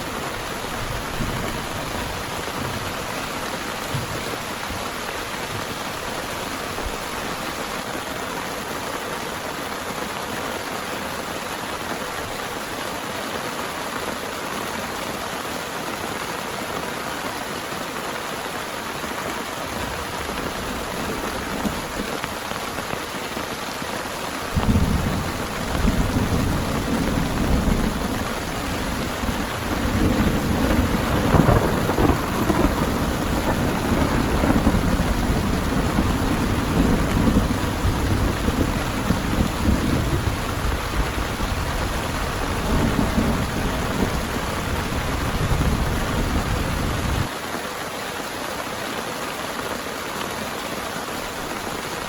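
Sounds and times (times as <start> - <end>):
heavy rain: 0.0 - 52.0
low rumble of thunder: 0.4 - 7.7, 24.5 - 47.3.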